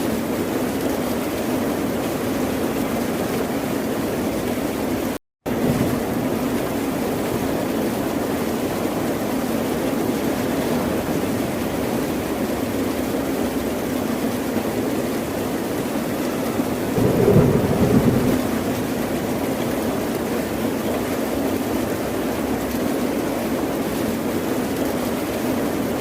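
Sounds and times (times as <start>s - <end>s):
ocean surf rushing: 16.9s - 19.8s.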